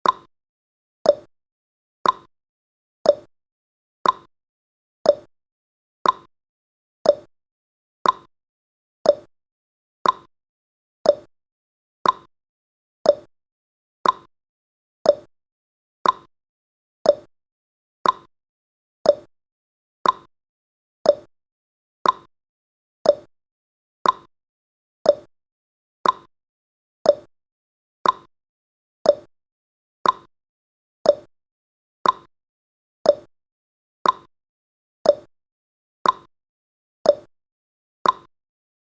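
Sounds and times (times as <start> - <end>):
clock ticking: 2.0 - 2.3, 4.0 - 4.3, 6.0 - 6.3, 8.0 - 8.3, 10.0 - 10.3, 12.0 - 12.3, 14.0 - 14.3, 18.0 - 18.3, 20.0 - 20.3, 22.0 - 22.3, 23.1 - 23.3, 24.0 - 24.3, 26.0 - 26.3, 28.0 - 28.3, 29.1 - 29.3, 30.0 - 30.3, 31.1 - 31.3, 32.0 - 32.3, 33.1 - 33.3, 34.0 - 34.3, 36.0 - 36.3, 38.0 - 38.3.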